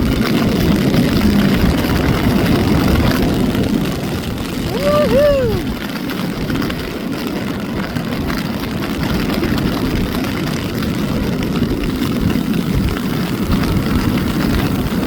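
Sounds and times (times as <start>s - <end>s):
strong wind on microphone: 0.0s - 15.0s.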